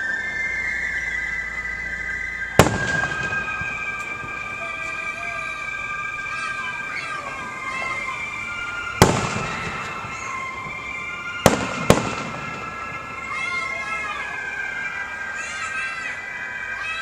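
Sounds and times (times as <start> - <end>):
firework whistling: 0.0 - 17.0
firework bang: 2.6 - 4.4, 9.0 - 10.8, 11.4 - 12.8.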